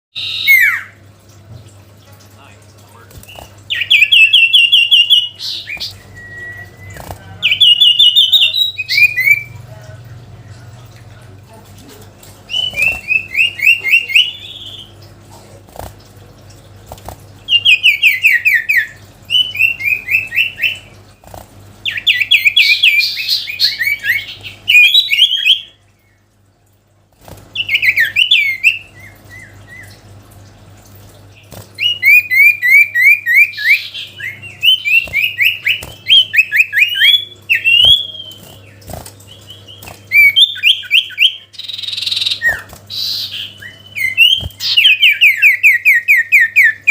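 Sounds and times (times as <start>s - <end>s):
bird singing rapid chirps: 0.2s - 1.0s, 3.2s - 9.6s, 12.5s - 15.0s, 17.5s - 20.9s, 21.8s - 25.8s, 31.4s - 46.9s.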